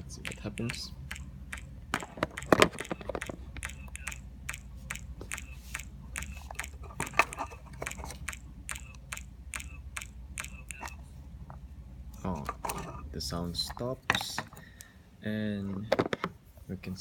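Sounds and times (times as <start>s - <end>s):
low electrical hum: 0.0s - 17.0s
crackling clicks from small speaker: 0.2s - 11.0s.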